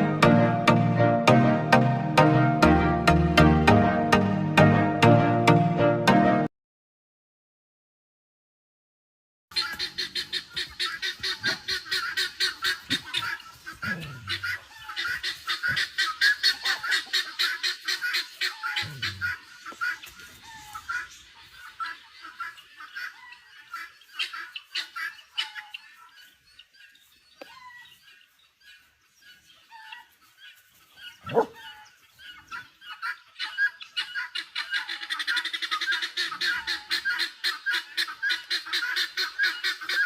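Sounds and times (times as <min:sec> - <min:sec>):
waterfowl flock honking: 0:09.5 - 0:26.2.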